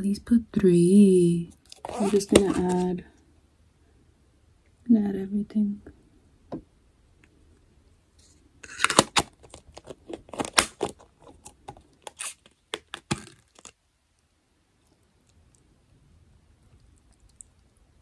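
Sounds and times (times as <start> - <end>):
plastic containers clicking and crinkling: 1.6 - 2.8, 8.6 - 13.8.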